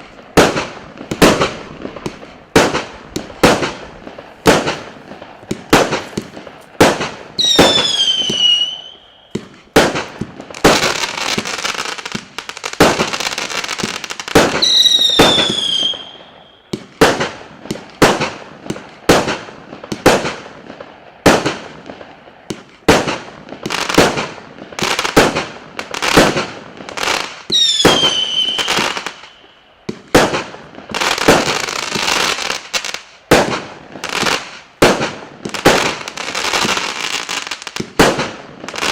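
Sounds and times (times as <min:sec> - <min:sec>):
firework cake bangs: 0:00.0 - 0:11.5, 0:13.8 - 0:24.5, 0:25.1 - 0:26.8, 0:29.9 - 0:32.2, 0:33.3 - 0:36.8, 0:37.8 - 0:38.9
descending firework whistle: 0:07.4 - 0:09.6, 0:14.5 - 0:16.9, 0:27.5 - 0:29.7.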